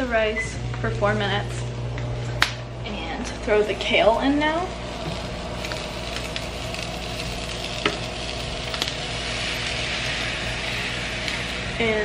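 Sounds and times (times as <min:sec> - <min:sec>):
vegetables sizzling in a frying pan: 0:04.0 - 0:12.0.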